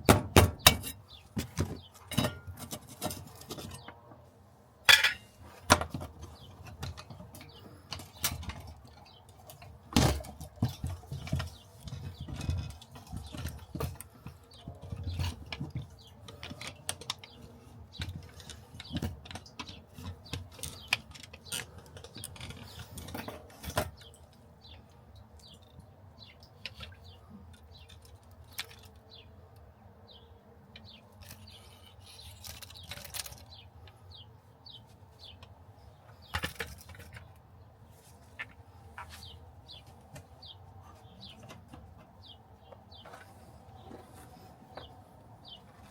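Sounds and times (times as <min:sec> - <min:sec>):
hand tools clicking and tapping: 0:04.9 - 0:24.2.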